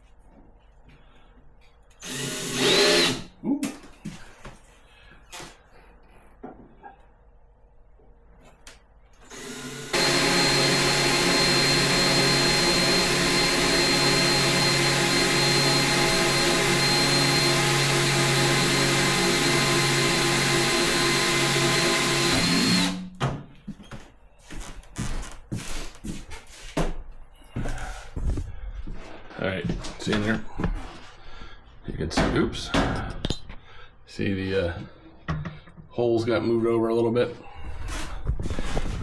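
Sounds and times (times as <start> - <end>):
electric drill running: 2.0 - 3.3, 9.2 - 23.1.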